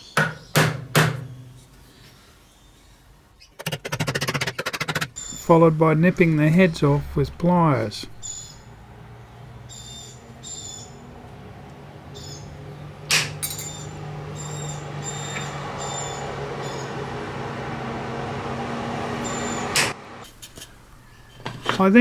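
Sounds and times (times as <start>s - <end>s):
bird chirps: 5.2s - 11.3s, 12.0s - 17.0s
low hum: 5.2s - 20.1s.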